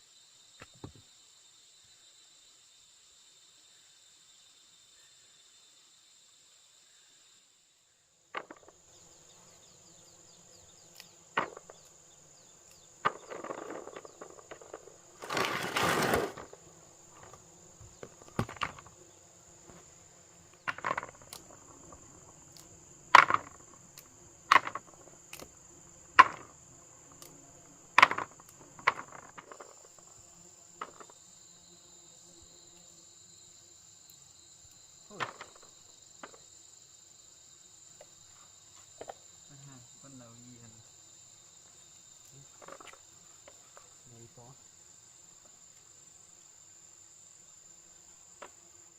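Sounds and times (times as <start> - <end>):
insects chirring: 0.0 - 48.9
sharp irregular knocks: 8.3 - 8.8, 11.4 - 11.9, 13.0 - 16.5, 17.2 - 18.9, 20.6 - 21.6, 23.1 - 23.7, 24.5 - 25.0, 26.2 - 26.5, 28.0 - 29.8
scraping rustling: 13.0 - 18.9.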